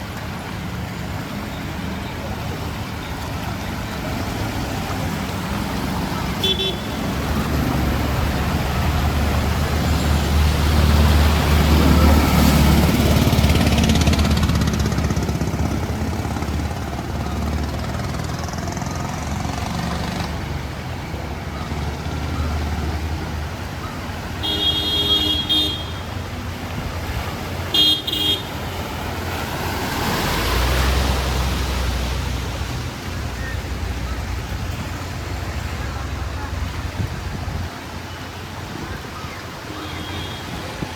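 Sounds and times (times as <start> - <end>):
vehicle engines passing: 0.0 - 40.9
vehicle horn: 6.4 - 7.2, 24.4 - 26.1, 27.7 - 28.6.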